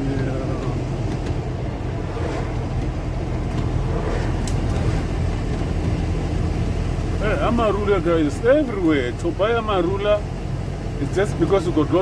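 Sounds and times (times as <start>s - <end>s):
car engine hum: 0.0s - 12.0s
road noise: 0.0s - 12.0s.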